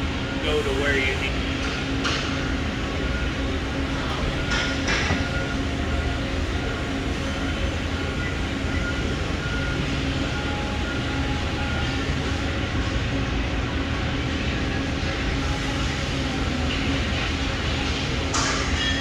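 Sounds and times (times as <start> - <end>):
press brake machine humming: 0.0 - 13.0
constant machine tones: 0.0 - 19.0.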